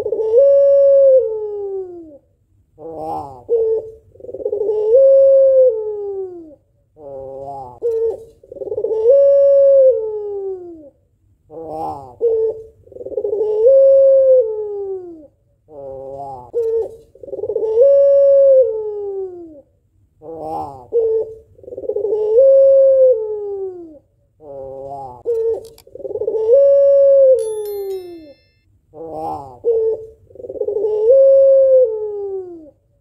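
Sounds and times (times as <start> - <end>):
dove cooing: 0.0 - 2.0, 2.8 - 10.7, 11.7 - 15.2, 15.8 - 19.4, 20.4 - 27.2, 29.6 - 32.7.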